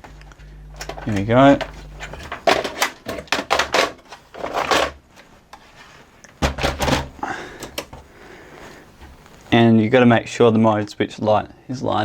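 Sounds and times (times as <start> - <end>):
mechanism parts clicking and knocking: 0.8 - 5.0.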